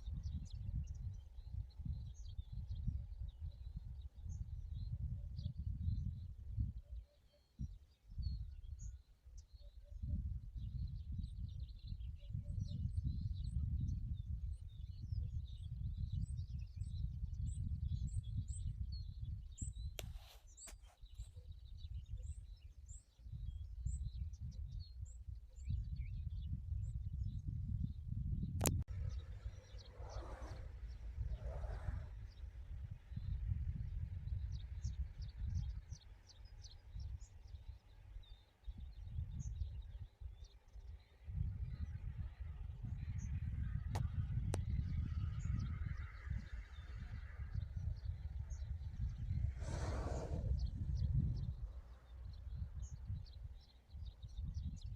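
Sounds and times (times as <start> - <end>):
wind buffeting microphone: 0.0 - 54.9
brief crackle: 20.0 - 21.0
small birds chirping: 28.5 - 54.9.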